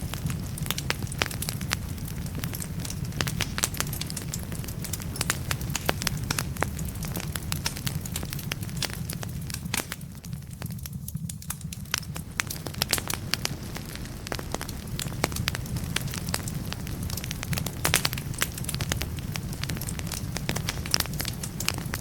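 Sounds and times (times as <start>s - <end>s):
fire low rumble: 0.0s - 22.0s
logs crackling and popping: 0.0s - 22.0s.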